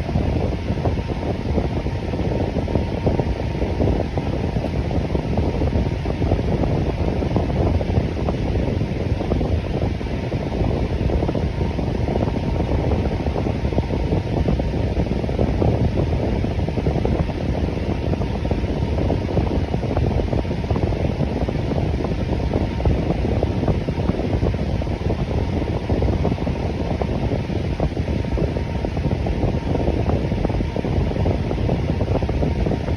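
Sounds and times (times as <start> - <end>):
electric fan running: 0.0 - 32.9.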